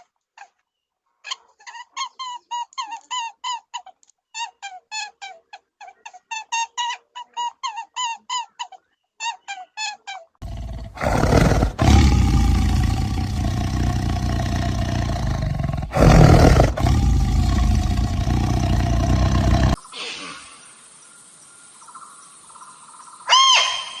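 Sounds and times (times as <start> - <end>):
animal roaring deeply: 10.4 - 19.8.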